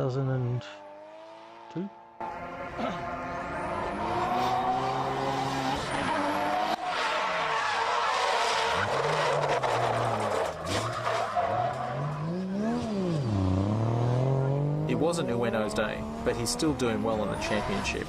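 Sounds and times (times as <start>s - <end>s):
car engine revving hard: 0.8s - 6.8s, 11.9s - 18.0s
tyres squealing and skidding: 2.2s - 13.7s, 16.9s - 18.0s.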